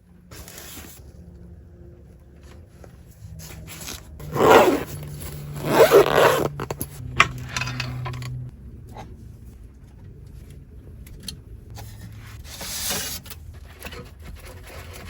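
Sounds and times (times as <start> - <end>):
low steady hum: 0.0 - 15.0
zipper pulled: 3.7 - 7.0.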